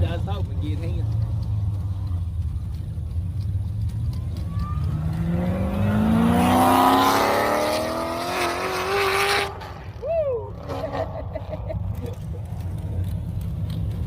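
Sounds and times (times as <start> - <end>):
car engine revving: 4.6 - 14.0.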